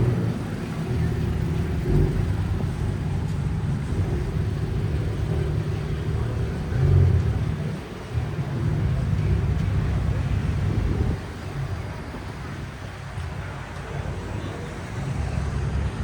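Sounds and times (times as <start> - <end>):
car engine rumbling: 0.0 - 16.0.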